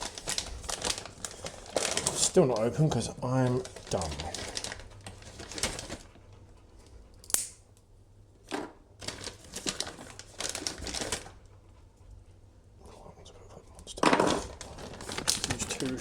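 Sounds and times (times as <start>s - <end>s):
packet crinkling and tearing: 0.0s - 6.1s, 9.0s - 11.4s, 14.3s - 16.0s
sharp snap: 7.2s - 7.6s.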